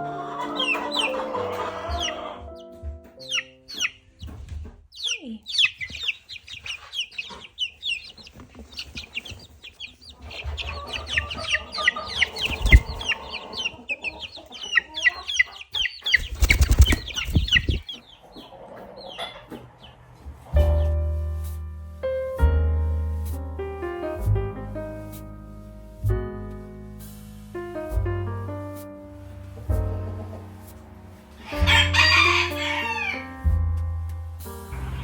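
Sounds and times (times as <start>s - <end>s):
chicks peeping: 0.0s - 21.6s, 29.1s - 33.8s
thumps and rustles: 4.2s - 4.9s, 12.4s - 13.1s, 16.2s - 17.9s.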